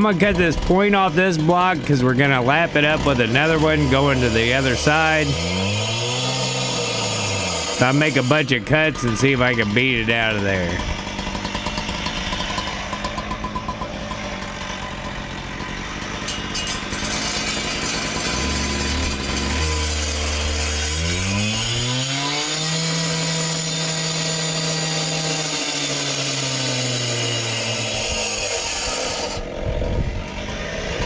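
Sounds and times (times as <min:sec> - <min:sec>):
two-stroke saw engine revving: 0:00.0 - 0:31.0.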